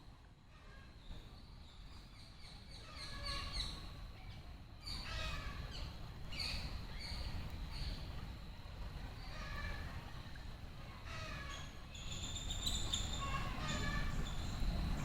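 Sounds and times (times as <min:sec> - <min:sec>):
wind rumble on microphone: 0:12.1 - 0:15.0.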